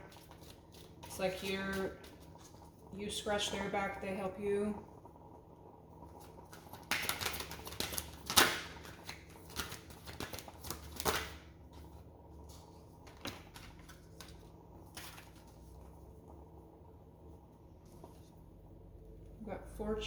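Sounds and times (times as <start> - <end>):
cards being shuffled: 0.0 - 1.1, 6.5 - 11.4, 13.0 - 15.5.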